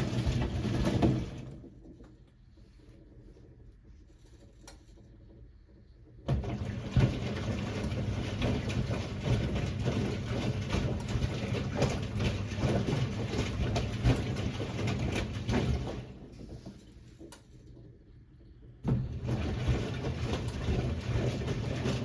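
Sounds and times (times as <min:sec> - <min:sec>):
laundry tumbling knocks: 0:00.0 - 0:01.8, 0:06.3 - 0:16.3, 0:18.8 - 0:22.0
washing machine motor hum: 0:00.0 - 0:22.0.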